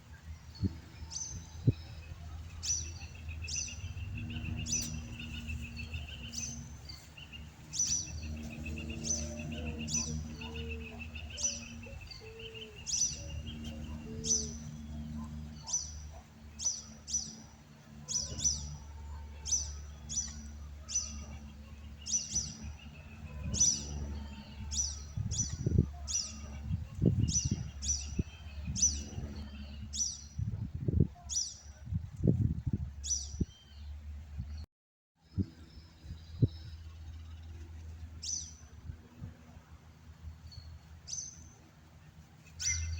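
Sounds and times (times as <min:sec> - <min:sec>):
low hum: 0:00.0 - 0:34.6
bird chirping: 0:00.1 - 0:30.4, 0:42.5 - 0:42.9.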